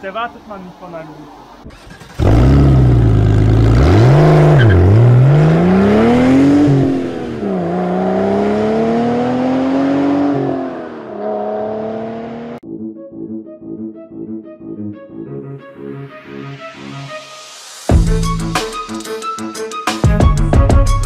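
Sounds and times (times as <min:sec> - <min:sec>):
car engine accelerating: 0:01.6 - 0:12.6
music: 0:12.6 - 0:21.0.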